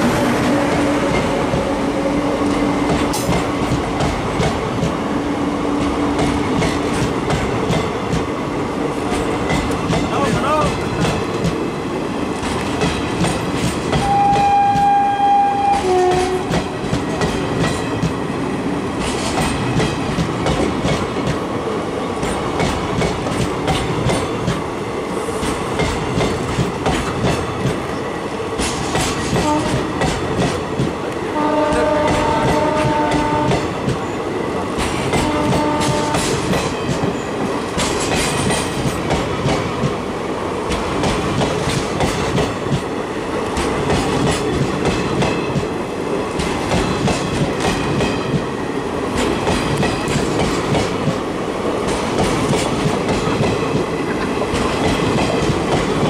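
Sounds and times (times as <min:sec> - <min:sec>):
train wheels clattering: 0:02.4 - 0:05.0, 0:05.8 - 0:08.4, 0:09.0 - 0:11.6, 0:12.4 - 0:15.0, 0:15.7 - 0:18.2, 0:18.9 - 0:21.4, 0:22.2 - 0:24.7, 0:25.3 - 0:27.9, 0:28.6 - 0:40.0, 0:40.6 - 0:56.0
train horn blasts: 0:14.0 - 0:16.5, 0:29.4 - 0:29.8, 0:31.3 - 0:33.7, 0:35.2 - 0:36.4.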